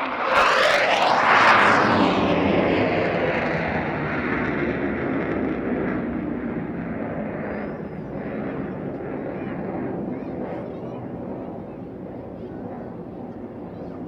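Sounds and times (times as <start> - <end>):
jet engine receding: 0.0 - 7.4.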